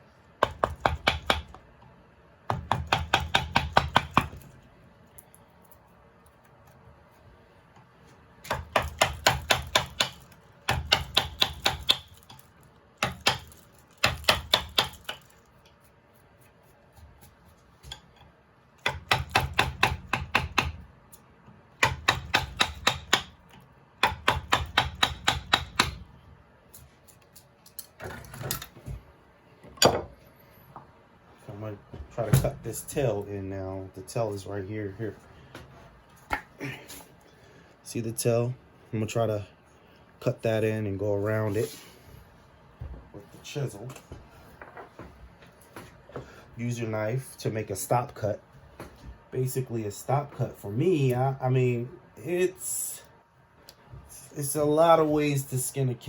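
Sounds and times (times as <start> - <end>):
mallet tapping chisel into wood: 0.4 - 1.6, 2.5 - 4.4, 8.5 - 12.1, 13.0 - 15.2, 18.8 - 20.8, 21.8 - 23.4, 24.0 - 26.0.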